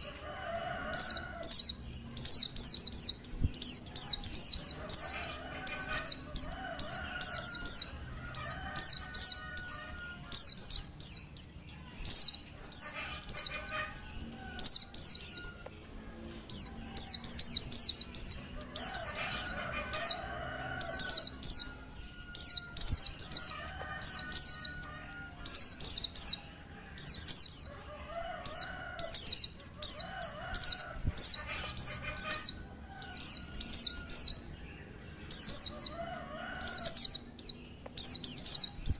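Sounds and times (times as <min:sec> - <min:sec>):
high downward-sliding bird chirps: 0:00.0 - 0:38.9
lower-pitched bird calls: 0:00.0 - 0:38.9.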